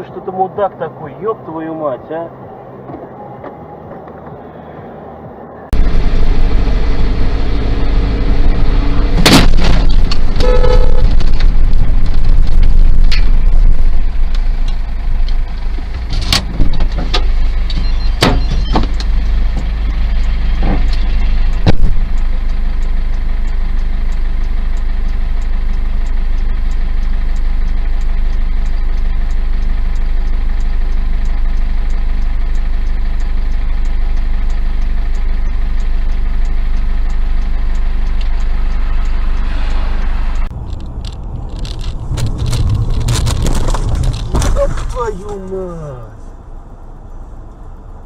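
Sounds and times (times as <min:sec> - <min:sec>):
car cabin engine drone: 0:00.0 - 0:48.0
faint regular ticks: 0:20.2 - 0:44.2.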